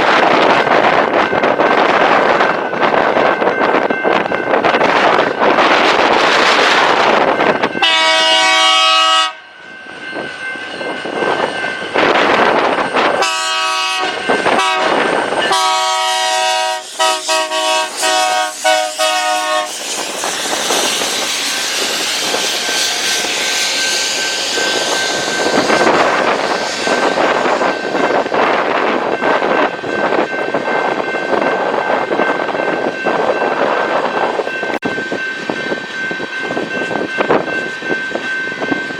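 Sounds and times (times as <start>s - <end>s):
train rolling past: 0.0s - 38.9s
locomotive air horn blasts: 7.8s - 9.6s, 13.2s - 19.8s.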